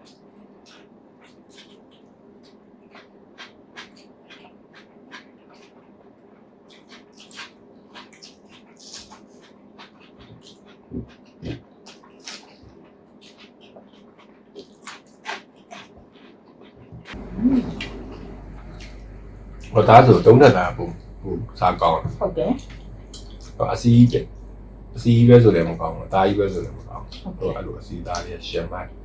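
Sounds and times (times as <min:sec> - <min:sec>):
chewing and lip-smacking: 0:00.0 - 0:19.9
steady low hum: 0:16.9 - 0:29.0.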